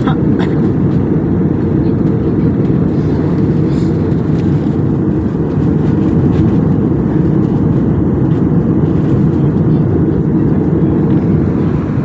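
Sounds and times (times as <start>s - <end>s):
airliner cabin engine rush: 0.0s - 12.0s.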